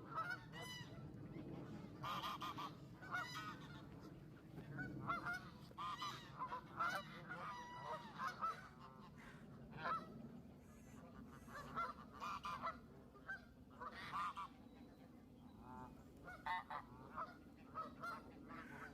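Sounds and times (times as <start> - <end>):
geese honking: 0.1 - 1.0, 2.0 - 4.0, 5.0 - 10.1, 11.4 - 14.5, 15.6 - 18.9.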